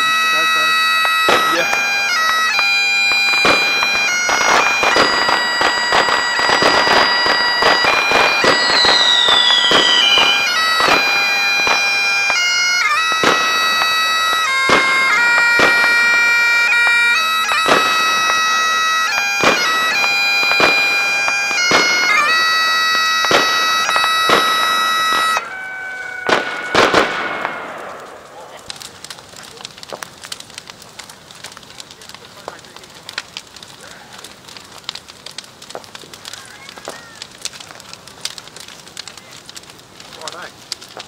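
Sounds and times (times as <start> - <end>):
bagpipes playing: 0.0 - 28.1
firework whistling: 0.0 - 30.7
firework bangs and crackles: 0.0 - 41.0.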